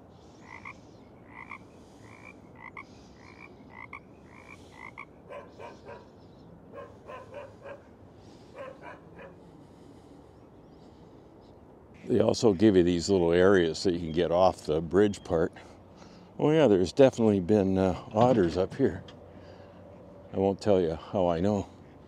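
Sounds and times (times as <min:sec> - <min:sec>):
frogs croaking: 0:00.0 - 0:10.1
frogs rattling calls: 0:00.3 - 0:06.1.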